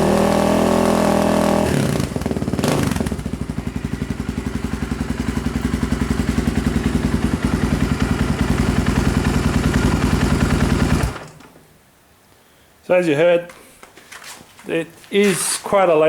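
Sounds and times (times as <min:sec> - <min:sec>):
motorcycle engine idling: 0:01.0 - 0:11.3.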